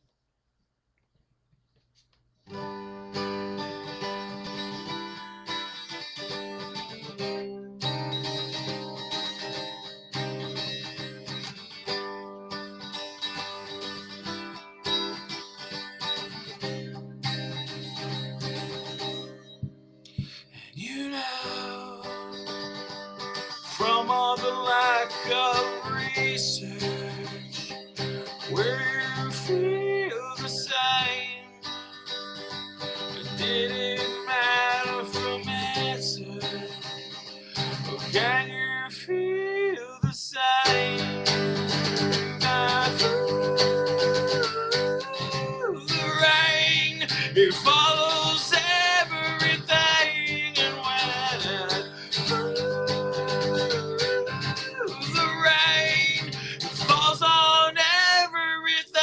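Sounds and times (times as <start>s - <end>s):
acoustic guitar strumming chords: 2.5s - 59.0s
person singing: 20.1s - 22.4s, 23.4s - 31.6s, 33.1s - 59.0s.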